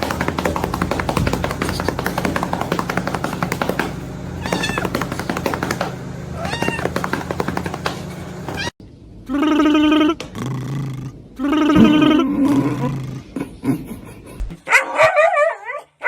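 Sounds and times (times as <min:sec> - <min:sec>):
music with fast beat: 0:00.0 - 0:07.9
cat meowing: 0:04.4 - 0:05.1, 0:06.4 - 0:07.4, 0:08.5 - 0:08.7.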